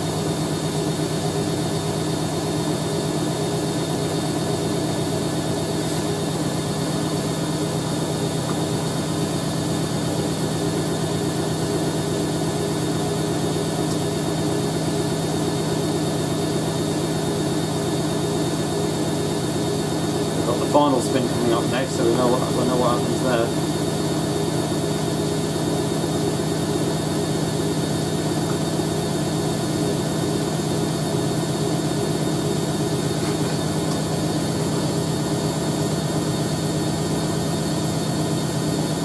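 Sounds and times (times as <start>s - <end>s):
washing machine spinning: 0.0s - 39.0s.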